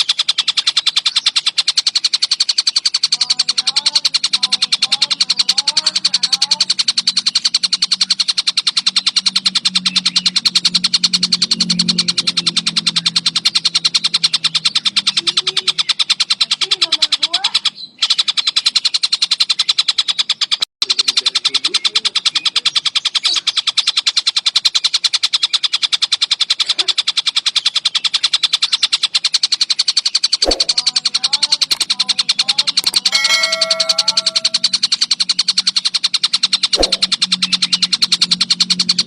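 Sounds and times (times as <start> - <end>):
kingfisher calling in rapid high notes: 30.5 - 34.7.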